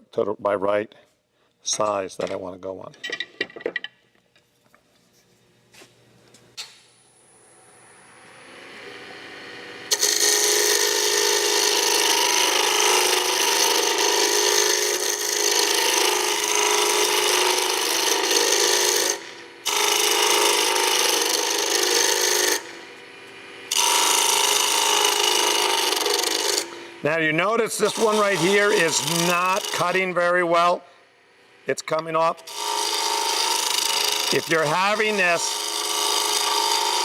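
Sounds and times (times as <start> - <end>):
lathe spinning up: 7.1 - 27.0, 27.7 - 30.6
gouge rasping on spinning wood: 10.0 - 22.8, 23.8 - 26.8, 27.7 - 30.7, 32.5 - 37.0.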